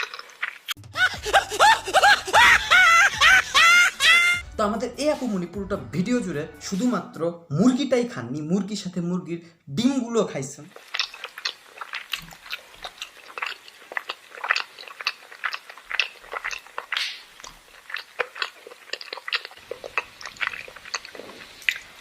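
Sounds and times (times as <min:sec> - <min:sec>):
person chewing with mouth open: 0:00.0 - 0:04.4, 0:10.7 - 0:22.0.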